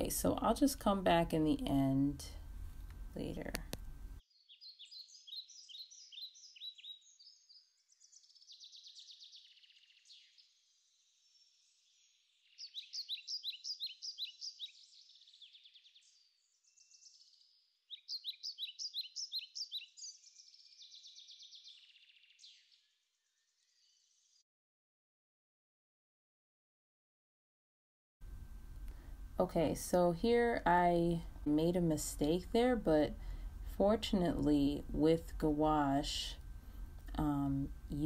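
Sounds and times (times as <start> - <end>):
songbirds chirping: 0.0 - 24.4
bird trills: 4.4 - 10.6, 11.3 - 22.9.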